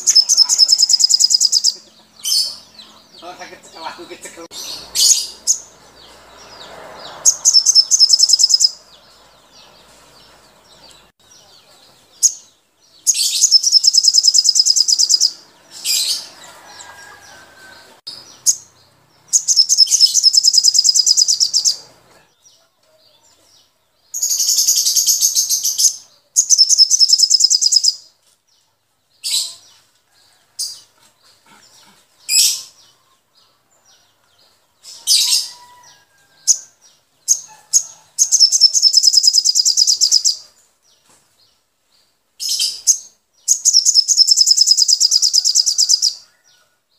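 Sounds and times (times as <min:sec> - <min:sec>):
sharp bird chirps: 0:00.0 - 0:09.0, 0:13.0 - 0:16.3, 0:18.1 - 0:21.9, 0:24.2 - 0:28.1, 0:37.3 - 0:40.5, 0:42.4 - 0:46.3
birds chattering trills: 0:00.0 - 0:22.4, 0:42.4 - 0:46.6.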